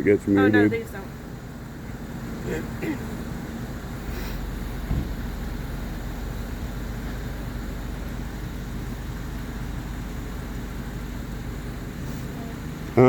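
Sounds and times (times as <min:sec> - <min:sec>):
motor vehicle rumble: 0:00.0 - 0:13.0
brief low thump: 0:04.8 - 0:05.3.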